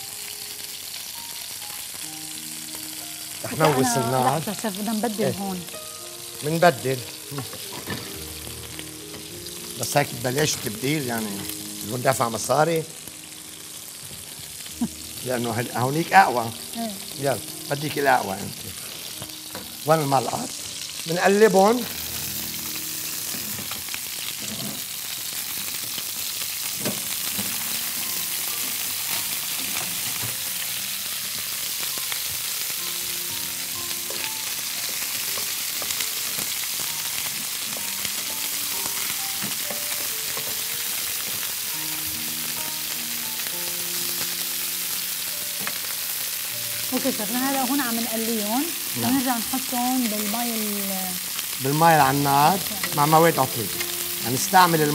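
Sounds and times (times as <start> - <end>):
chicken wings sizzling in frying pan: 0.0 - 54.9
metal tongs turning food: 51.4 - 54.9.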